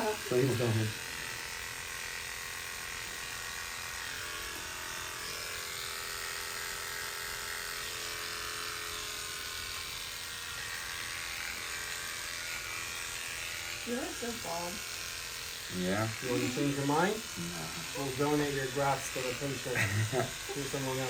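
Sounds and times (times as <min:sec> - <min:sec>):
electric hair clippers buzzing: 0:00.0 - 0:21.0.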